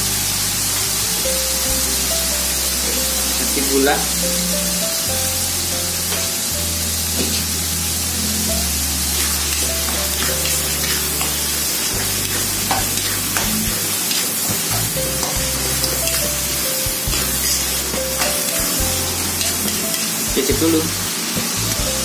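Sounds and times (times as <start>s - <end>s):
sauce sizzling in a wok: 0.0s - 22.0s
metal spatula scraping a pan: 9.0s - 20.3s.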